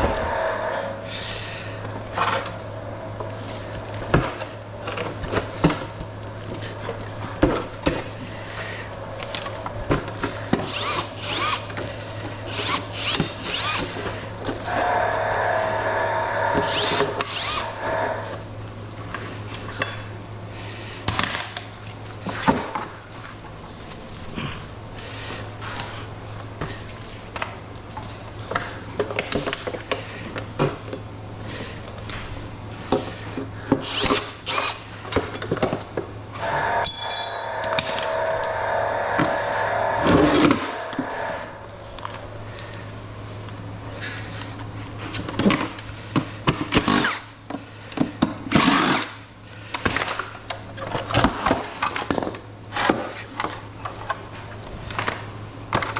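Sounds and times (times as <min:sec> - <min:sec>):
steady low hum: 0:00.0 - 0:46.7
power drill whirring: 0:10.5 - 0:11.8, 0:12.5 - 0:18.4, 0:33.8 - 0:34.9.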